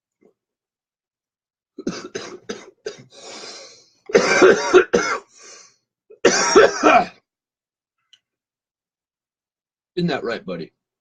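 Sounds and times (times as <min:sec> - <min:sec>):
man coughing: 0:01.8 - 0:03.1, 0:04.1 - 0:05.3, 0:06.2 - 0:07.2
breathy exhale: 0:03.1 - 0:03.9, 0:05.3 - 0:05.8.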